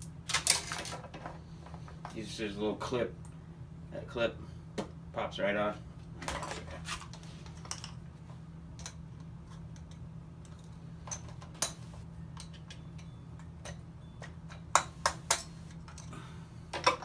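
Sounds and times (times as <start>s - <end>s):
metal parts clicking and clinking: 0.0s - 1.4s, 9.7s - 16.1s
steady low hum: 0.0s - 17.0s.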